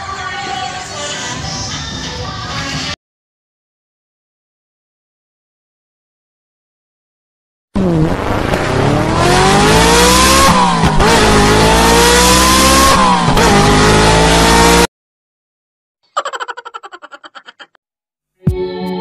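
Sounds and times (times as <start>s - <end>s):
sports car engine accelerating: 7.8s - 14.9s.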